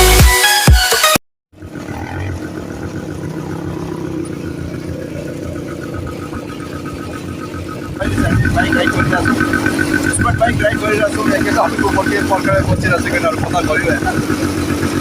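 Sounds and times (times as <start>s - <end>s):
electronic dance music: 0.0s - 1.2s
quad bike engine running: 1.6s - 15.0s.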